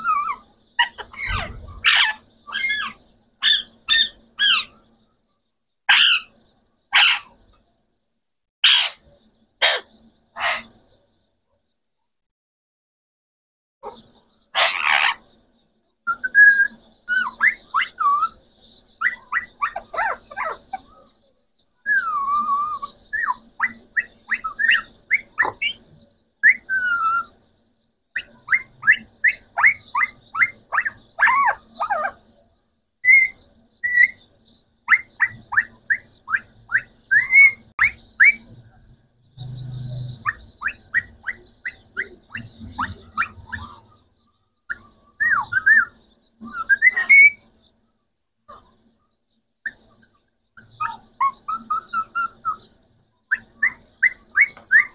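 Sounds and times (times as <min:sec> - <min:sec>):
parrot squawk: 0:00.0 - 0:04.8, 0:05.9 - 0:06.3, 0:06.9 - 0:07.4, 0:08.6 - 0:09.0, 0:09.6 - 0:10.7, 0:14.6 - 0:15.2, 0:19.0 - 0:20.8, 0:21.9 - 0:25.8, 0:28.2 - 0:32.2, 0:34.9 - 0:38.4, 0:40.2 - 0:43.9, 0:46.5 - 0:47.4
parrots chirping: 0:00.0 - 0:05.0, 0:05.9 - 0:07.6, 0:08.6 - 0:10.9, 0:13.8 - 0:15.4, 0:16.1 - 0:21.2, 0:21.8 - 0:47.6, 0:49.6 - 0:54.9
parrot gliding whistles: 0:16.1 - 0:18.4, 0:21.8 - 0:25.8, 0:26.4 - 0:27.3, 0:33.0 - 0:34.2, 0:34.9 - 0:38.5, 0:44.7 - 0:47.4, 0:50.8 - 0:52.6, 0:53.3 - 0:54.9.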